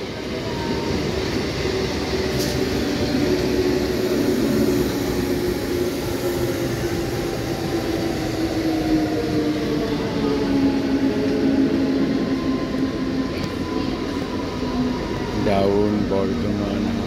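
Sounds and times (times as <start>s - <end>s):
low train hum: 0.0s - 17.0s
train wheels rumbling on track: 0.0s - 17.0s.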